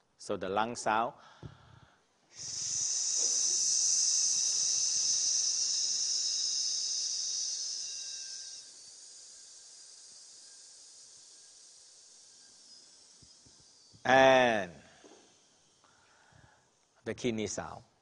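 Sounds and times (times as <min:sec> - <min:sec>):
breath hissing through teeth: 0:01.3 - 0:13.4.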